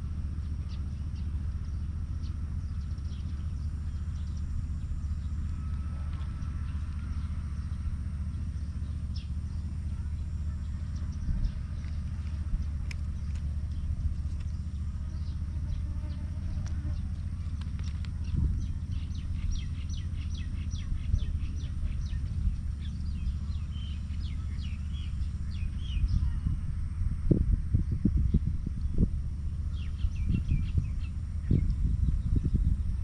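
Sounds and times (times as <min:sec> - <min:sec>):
small birds chirping: 0:00.0 - 0:33.0
steady low rumble: 0:00.0 - 0:33.0.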